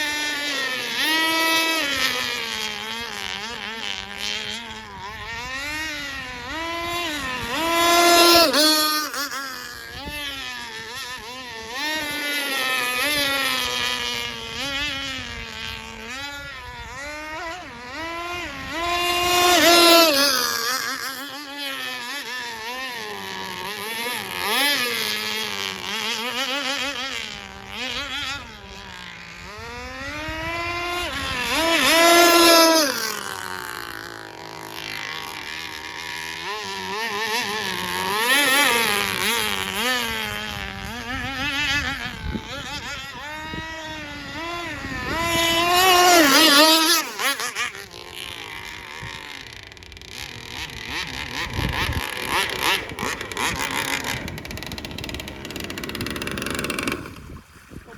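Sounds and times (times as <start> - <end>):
model boat engine: 0.0 - 57.9.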